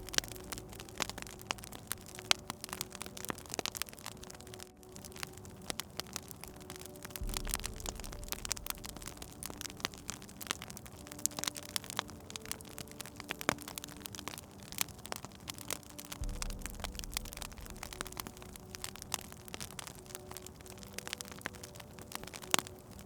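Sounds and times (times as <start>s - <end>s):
low rumble: 0.0s - 5.6s, 6.4s - 12.4s, 16.1s - 20.6s
wood fire crackling and popping: 0.0s - 23.0s.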